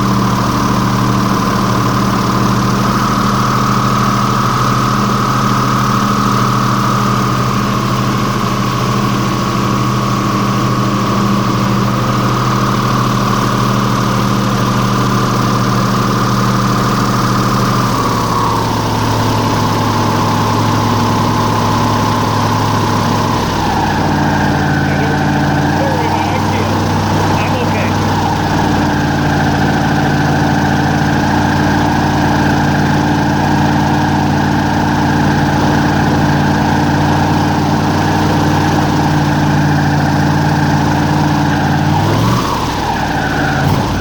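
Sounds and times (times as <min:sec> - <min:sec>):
airboat engine and propeller: 0:00.0 - 0:44.0.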